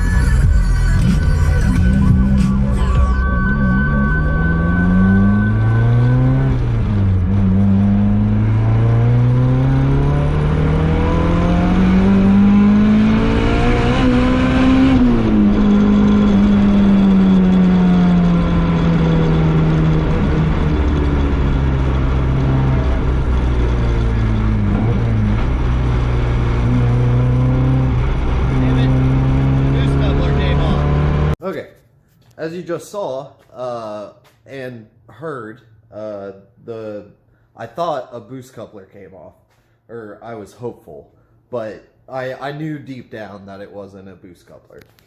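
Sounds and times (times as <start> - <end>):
turbocharged car engine revving: 0.0 - 31.4.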